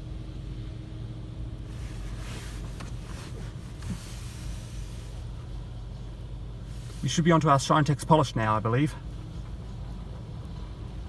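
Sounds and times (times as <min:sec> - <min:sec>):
car wash machine hum: 0:00.0 - 0:11.0
car wash hiss: 0:01.6 - 0:05.5, 0:06.6 - 0:07.5.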